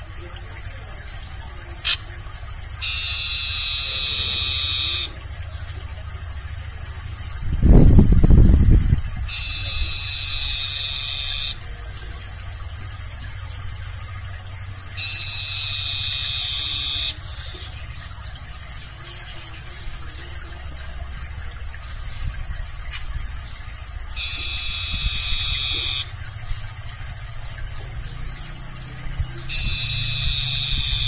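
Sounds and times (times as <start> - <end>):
barn owl screeching: 2.8 - 5.2, 9.3 - 11.6, 15.0 - 17.5, 24.2 - 26.1, 29.5 - 31.0.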